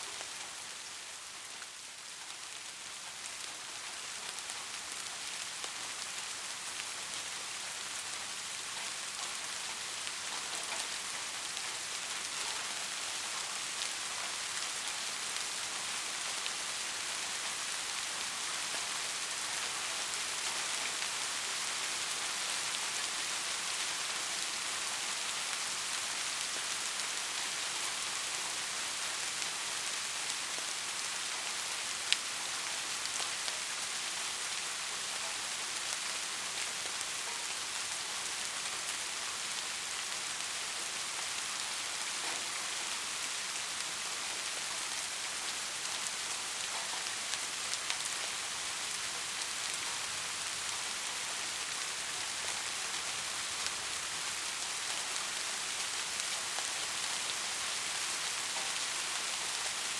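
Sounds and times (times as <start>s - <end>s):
steady rainfall hiss: 0.0s - 59.9s
raindrop ticks: 8.7s - 21.1s.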